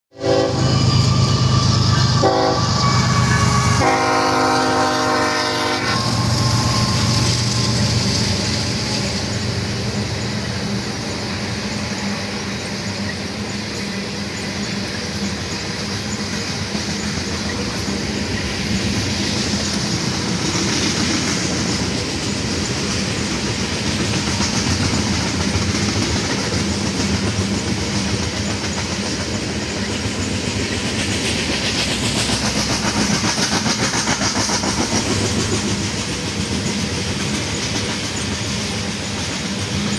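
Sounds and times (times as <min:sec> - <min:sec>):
locomotive air horn: 0:00.1 - 0:07.2
train cars rumbling: 0:00.1 - 0:39.9
wheels clacking on rail joints: 0:03.2 - 0:39.9.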